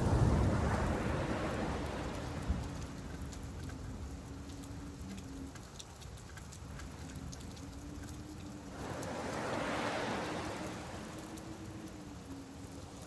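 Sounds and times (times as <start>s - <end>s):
wave washing in: 0.0s - 3.2s, 8.7s - 12.5s
surf rumble: 0.0s - 5.5s, 6.7s - 13.0s
faint steady hum: 0.0s - 13.0s
rain pattering: 0.0s - 13.0s.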